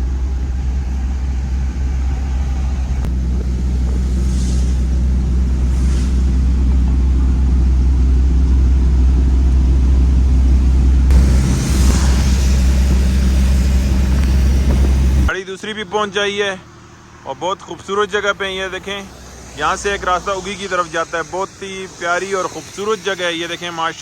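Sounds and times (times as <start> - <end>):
pickup engine hum: 0.0 - 15.3, 16.6 - 23.7
road rumble: 0.0 - 24.0
hissing: 11.1 - 15.3, 18.6 - 24.0.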